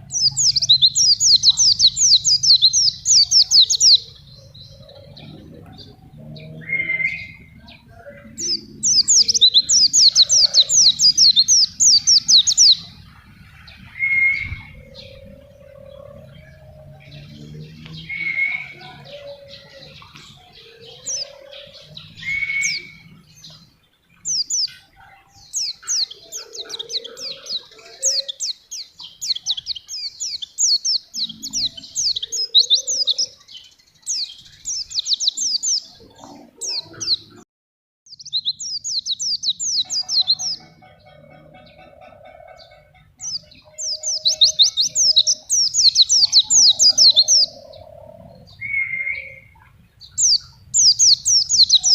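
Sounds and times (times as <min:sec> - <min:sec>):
bird twittering: 0:00.0 - 0:37.4, 0:38.1 - 0:51.9.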